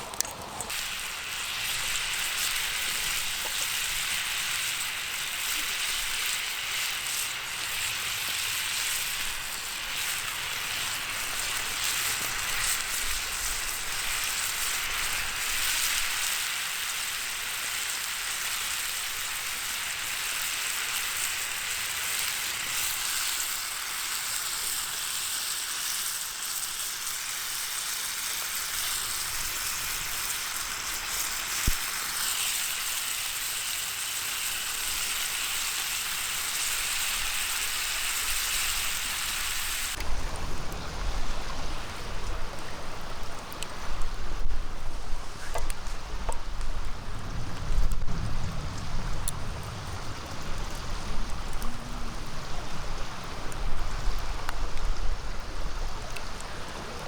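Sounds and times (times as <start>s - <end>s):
food sizzling in frying pan: 0.0s - 42.5s.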